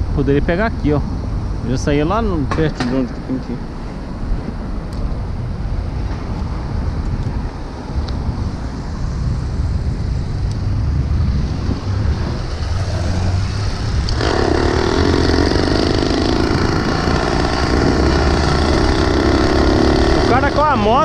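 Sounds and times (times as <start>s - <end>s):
street traffic: 0.0s - 21.0s
wind on microphone: 0.0s - 21.0s
small engine running: 14.0s - 20.8s.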